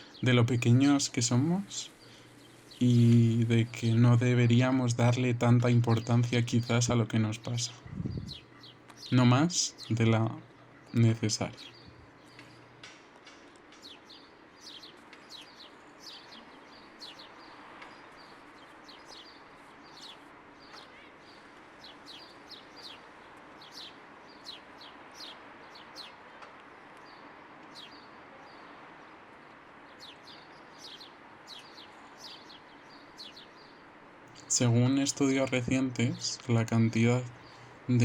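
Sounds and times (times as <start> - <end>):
small birds chirping: 0.0 - 38.0
steady background noise: 0.0 - 38.0.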